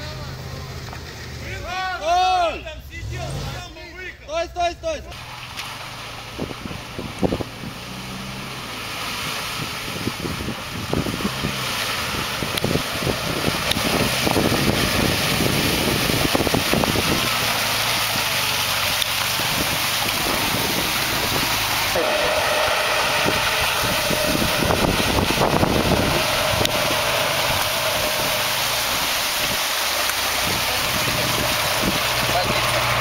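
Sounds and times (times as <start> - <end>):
vehicle engine running hard: 0.0 - 1.8, 5.1 - 33.0
water splashing: 5.1 - 33.0
wind on microphone: 6.3 - 7.8, 9.6 - 17.8, 19.3 - 22.4, 23.0 - 29.6, 30.3 - 33.0.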